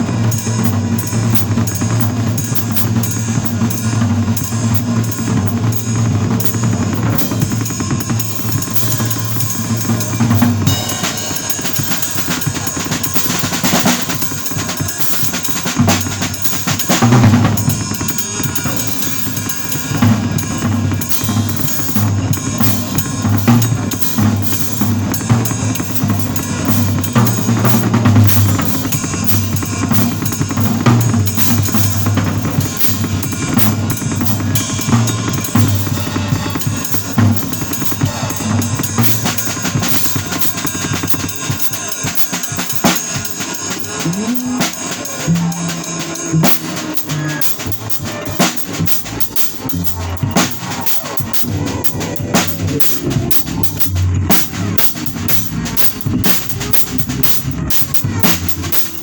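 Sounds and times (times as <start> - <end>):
drum kit playing: 0.0 - 59.0
sustained low bass notes: 51.4 - 58.8.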